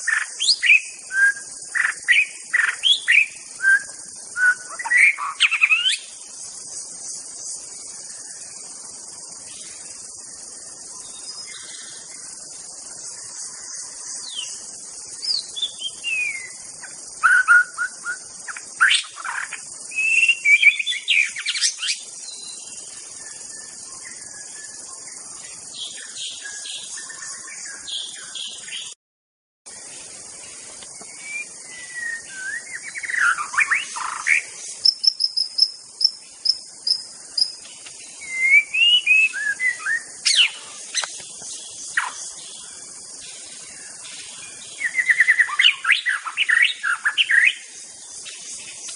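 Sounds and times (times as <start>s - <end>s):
bird singing whistled phrases: 0.0s - 6.0s, 15.2s - 16.6s, 17.2s - 22.6s, 31.0s - 35.2s, 38.2s - 40.6s, 44.8s - 47.6s
high insect-like buzz: 0.0s - 28.9s, 29.7s - 48.9s.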